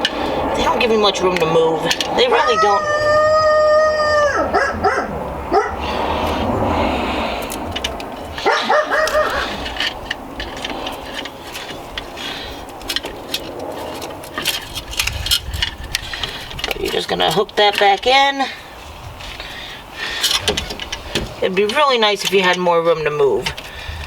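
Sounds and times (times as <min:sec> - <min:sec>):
dog barking: 0:04.3 - 0:05.8, 0:08.4 - 0:09.5.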